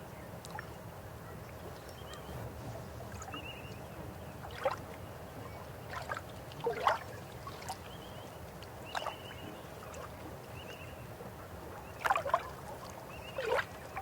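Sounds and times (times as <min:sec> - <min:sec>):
river water flowing: 0:04.2 - 0:14.0
water gurgles and splashes: 0:04.4 - 0:04.9, 0:05.8 - 0:08.0, 0:11.8 - 0:14.0.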